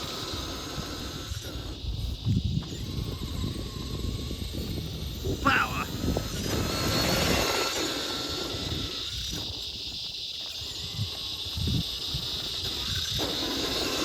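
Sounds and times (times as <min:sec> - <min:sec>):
electric motor whining: 0:00.0 - 0:09.6.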